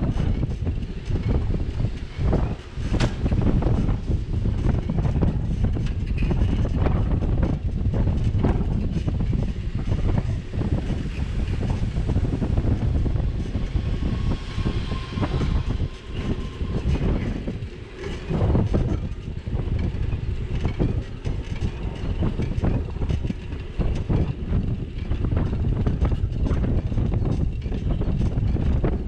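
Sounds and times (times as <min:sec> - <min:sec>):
bicycle rattling over bumps: 0:00.0 - 0:29.0
wind noise on camera: 0:00.0 - 0:29.0.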